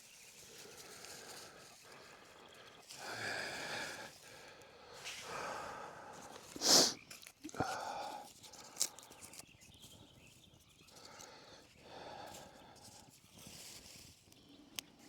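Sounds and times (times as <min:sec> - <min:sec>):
person blowing breaths: 0:06.6 - 0:07.0
short hiss: 0:06.6 - 0:07.0.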